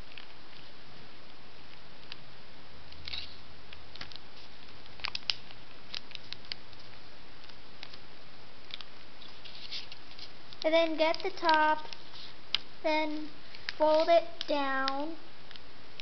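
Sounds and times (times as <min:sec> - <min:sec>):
steady hiss: 0:00.0 - 0:16.0
paper crinkling: 0:03.0 - 0:14.9.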